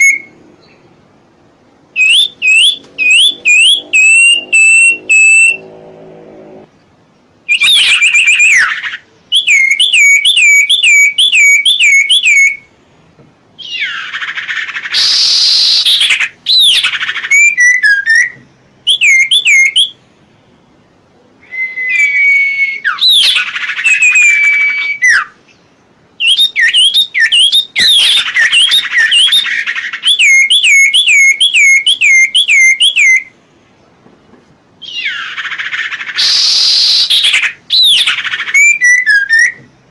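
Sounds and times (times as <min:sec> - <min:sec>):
songbird whistling: 0:00.0 - 0:00.8, 0:01.9 - 0:05.8, 0:07.4 - 0:12.7, 0:13.6 - 0:20.1, 0:21.4 - 0:33.3, 0:34.8 - 0:39.8
bird harsh rasping call: 0:02.0 - 0:06.4, 0:13.6 - 0:18.2, 0:34.8 - 0:39.5.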